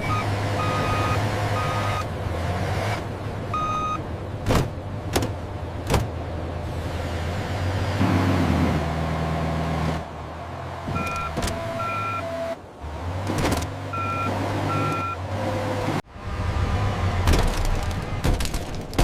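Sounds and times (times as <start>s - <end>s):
short electronic beeps: 0.0s - 2.1s.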